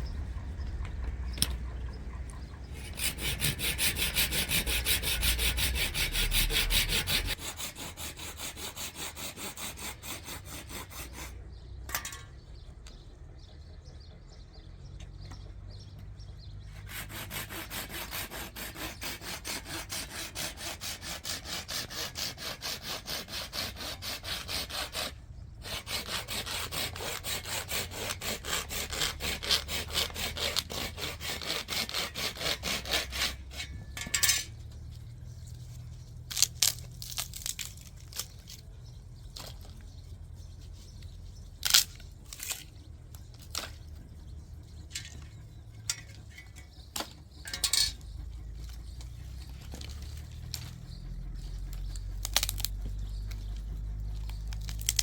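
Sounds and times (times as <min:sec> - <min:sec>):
hand saw cutting wood: 0:02.6 - 0:11.4, 0:16.6 - 0:34.6, 0:36.3 - 0:38.6, 0:41.0 - 0:42.8, 0:49.7 - 0:55.0.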